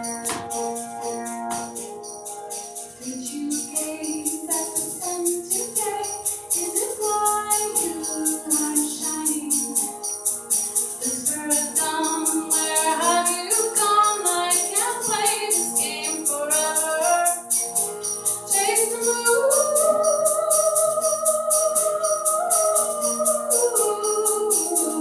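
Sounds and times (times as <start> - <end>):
high-pitched percussion hits: 0.0 - 25.0
sitar: 0.0 - 25.0
person singing: 2.9 - 10.2, 11.0 - 17.6, 18.5 - 25.0.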